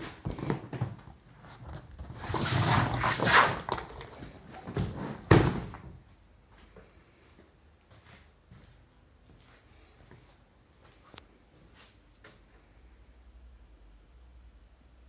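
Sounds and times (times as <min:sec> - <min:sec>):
rustling scrape: 0:01.4 - 0:05.3.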